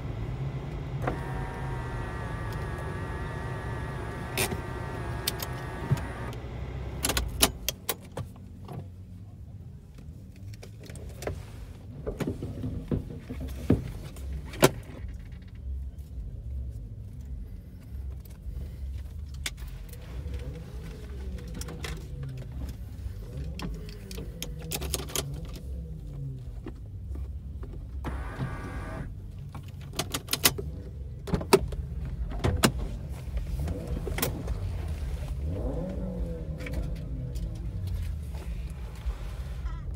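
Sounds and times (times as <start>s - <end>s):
car engine idling: 0.0s - 7.4s, 28.0s - 29.2s.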